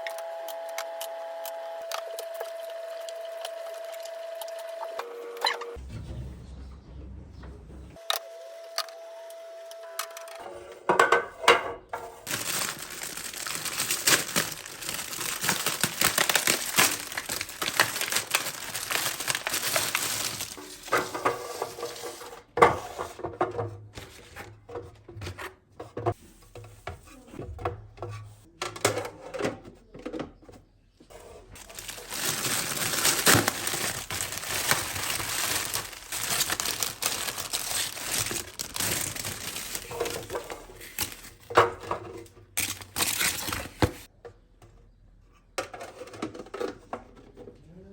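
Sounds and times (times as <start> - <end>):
crinkling and rustling: 12.0 - 23.2, 31.1 - 44.1.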